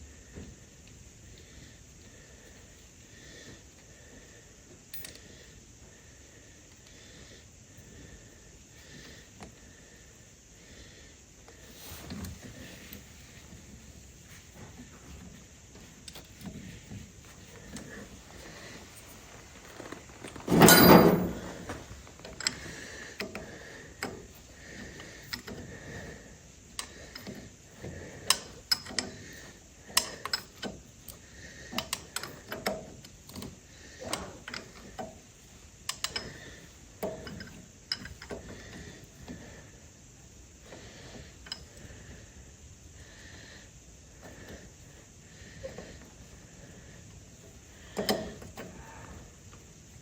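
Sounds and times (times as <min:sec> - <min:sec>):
metal clattering: 0:19.8 - 0:22.1
tools clicking and knocking on metal: 0:20.3 - 0:24.2, 0:28.2 - 0:29.1, 0:35.9 - 0:38.8, 0:47.9 - 0:48.8.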